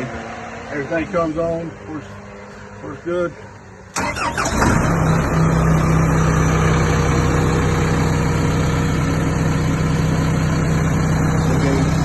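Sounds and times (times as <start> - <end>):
concrete mixer engine idling: 5.3 - 12.0.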